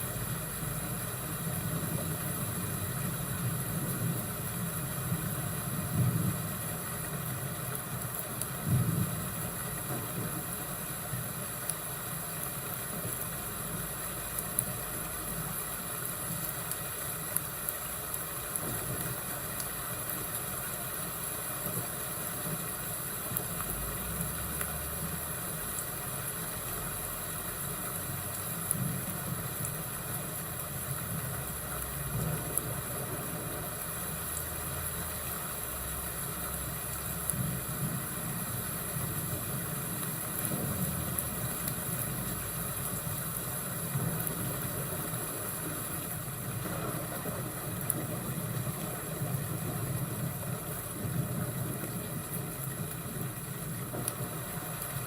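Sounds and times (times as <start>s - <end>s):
fire crackling: 0.0s - 55.0s
rain hiss: 0.0s - 55.0s
thunder rumbles: 1.3s - 7.5s, 8.4s - 10.6s, 31.1s - 34.2s, 37.1s - 55.0s.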